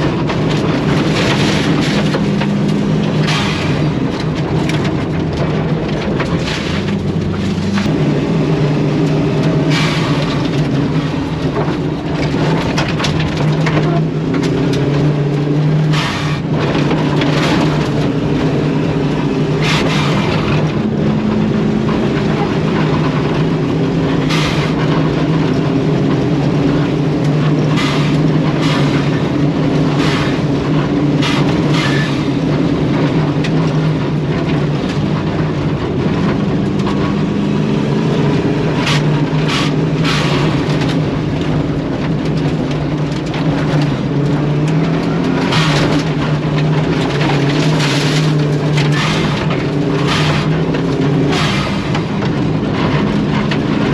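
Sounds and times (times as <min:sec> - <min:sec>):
gravel striking car: 0:00.0 - 0:53.9
rally car engine under load: 0:00.0 - 0:53.9
road noise: 0:00.0 - 0:53.9.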